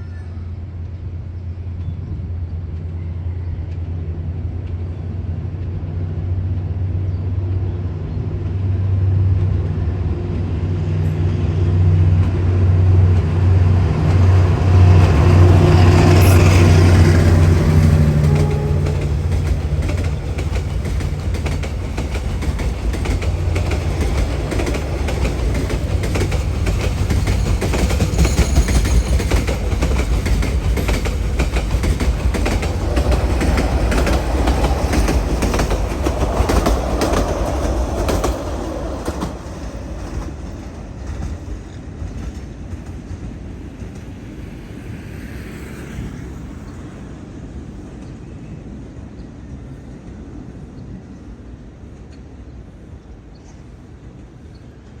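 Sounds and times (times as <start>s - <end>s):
diesel locomotive engine hum: 0.0s - 55.0s
train wheels clacking over rail joints: 12.2s - 44.2s.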